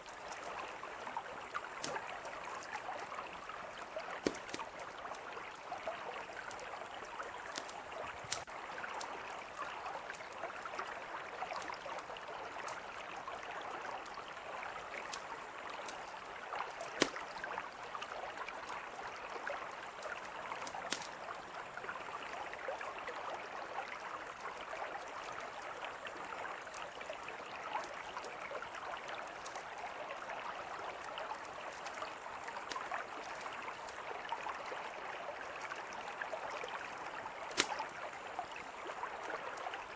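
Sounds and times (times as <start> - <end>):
river flowing: 0.0 - 39.9
campfire popping and crackling: 1.6 - 2.7, 4.2 - 5.2, 6.4 - 9.1, 14.9 - 17.5, 20.0 - 21.2, 37.4 - 38.0.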